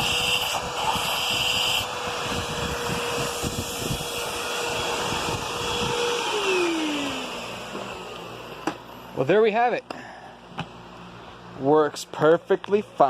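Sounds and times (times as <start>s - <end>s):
vacuum cleaner motor whine: 0.0s - 9.2s.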